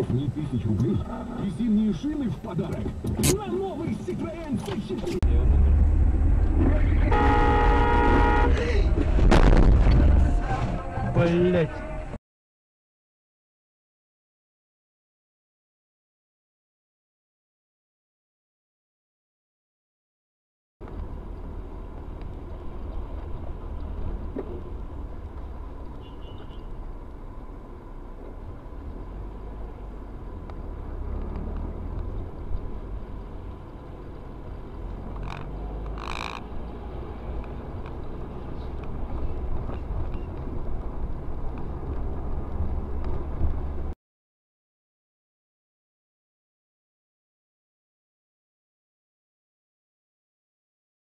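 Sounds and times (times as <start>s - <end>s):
road and engine rumble: 0.0s - 12.2s, 20.8s - 44.0s.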